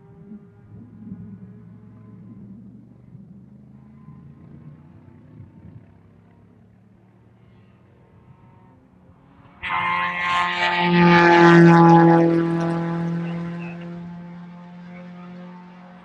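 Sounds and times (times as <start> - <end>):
sports car engine running hard: 8.1 - 16.0.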